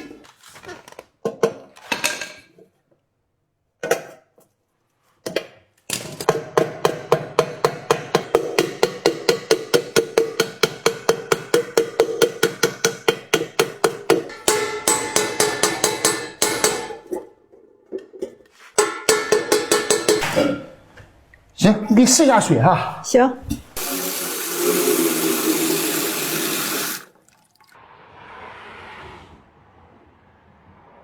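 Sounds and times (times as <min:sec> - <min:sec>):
hammer striking metal pot: 0:06.2 - 0:17.3, 0:18.8 - 0:20.8
metal pot ringing: 0:14.3 - 0:17.1, 0:18.8 - 0:20.7.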